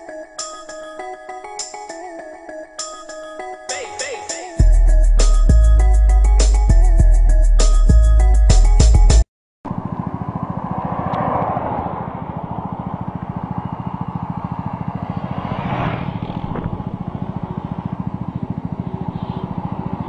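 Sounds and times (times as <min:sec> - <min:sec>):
motorcycle engine idling: 0:09.7 - 0:20.0.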